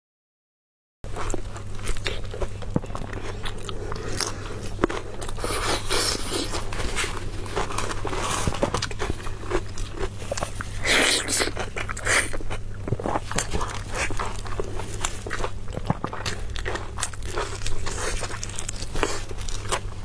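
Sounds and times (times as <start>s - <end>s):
low hum: 1.1s - 20.0s
person chewing crunchy food: 1.1s - 20.0s.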